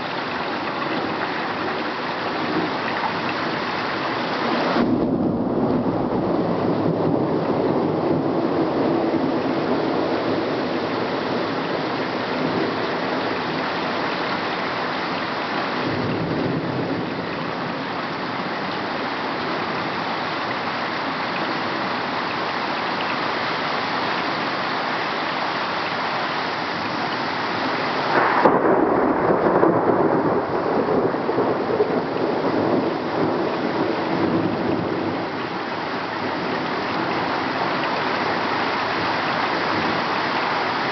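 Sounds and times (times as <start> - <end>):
thunder rumbling: 0.0 - 20.1, 26.8 - 40.9
heavy rain falling: 0.0 - 40.9
sharp thunderclap: 4.6 - 9.3, 28.0 - 35.2.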